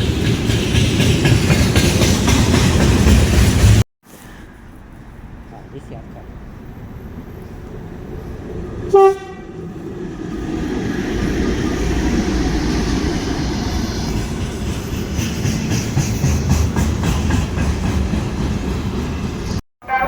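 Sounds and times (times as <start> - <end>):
wheels clicking over rail joints: 0.0 - 5.7
train rumbling past: 0.0 - 20.0.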